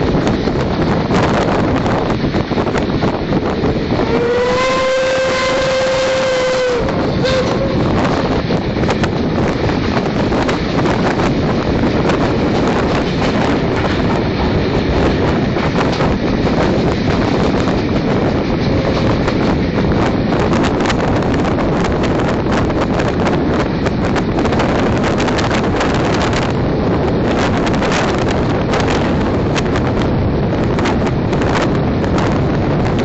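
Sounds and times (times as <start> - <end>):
moving train noise: 0.0 - 33.0
wind buffeting microphone: 0.0 - 33.0
steam locomotive whistle: 4.0 - 8.2.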